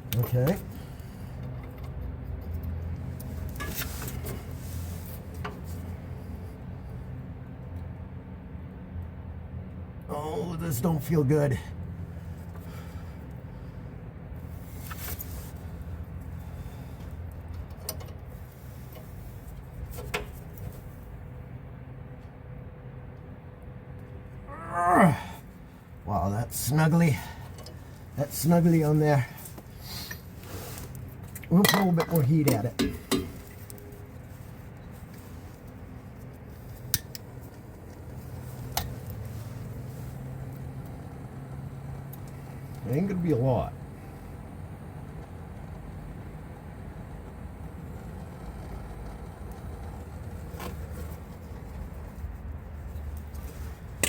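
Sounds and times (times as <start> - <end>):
steady low hum: 0.0 - 54.0
gas torch flame burning: 26.5 - 54.0.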